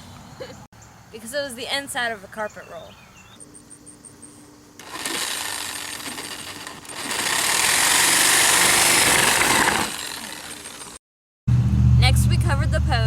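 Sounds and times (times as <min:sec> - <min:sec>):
power tool rattling: 0:04.8 - 0:11.0.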